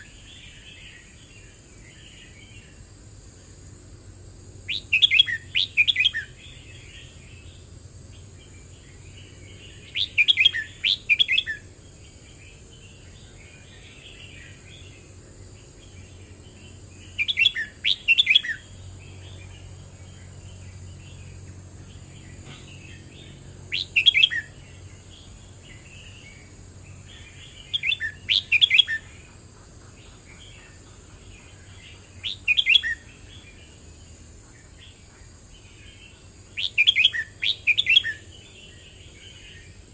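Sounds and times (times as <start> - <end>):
bird twittering: 4.7 - 7.1, 8.8 - 11.7, 16.0 - 21.2, 21.9 - 33.6, 34.6 - 39.7.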